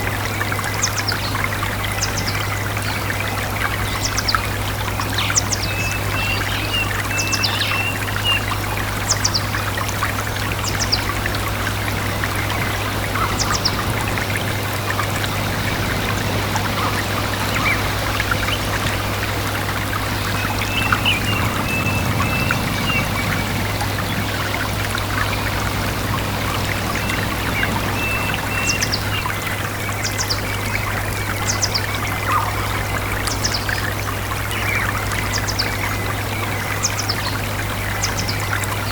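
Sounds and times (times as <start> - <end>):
stream babbling: 0.0 - 38.9
small birds chirping: 0.4 - 33.9
steady low hum: 10.9 - 29.6.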